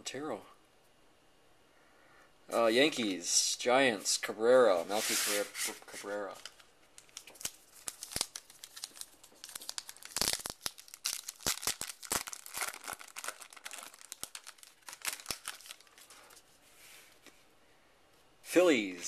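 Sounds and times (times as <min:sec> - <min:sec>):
wrapper tearing and crinkling: 0:06.3 - 0:16.4.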